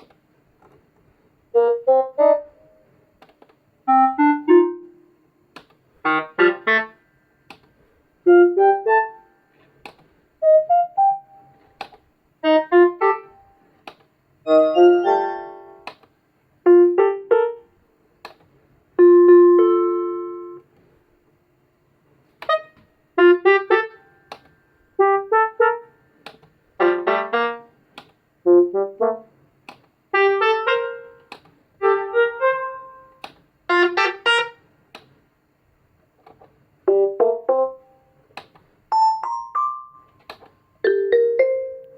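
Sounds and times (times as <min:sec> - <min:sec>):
electronic keyboard notes: 0:01.5 - 0:02.9, 0:03.9 - 0:05.2, 0:06.0 - 0:07.0, 0:08.2 - 0:09.3, 0:10.4 - 0:11.6, 0:12.4 - 0:13.6, 0:14.5 - 0:16.0, 0:16.7 - 0:17.7, 0:19.0 - 0:20.7, 0:22.4 - 0:24.4, 0:25.0 - 0:25.9, 0:26.8 - 0:27.7, 0:28.5 - 0:29.3, 0:30.1 - 0:34.6, 0:36.9 - 0:38.0, 0:38.9 - 0:41.9.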